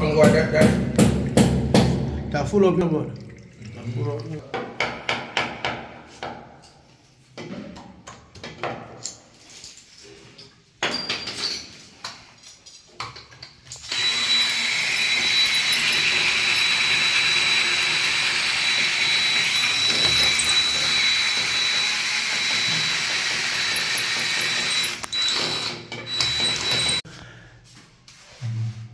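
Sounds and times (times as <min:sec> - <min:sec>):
knocks and clanks: 0:00.1 - 0:02.6
small motor whirring: 0:13.8 - 0:27.0.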